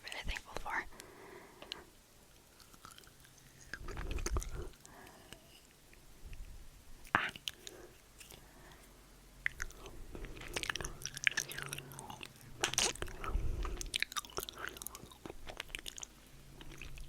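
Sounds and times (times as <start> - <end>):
chewing crunchy snack: 2.4 - 5.8, 7.0 - 17.0.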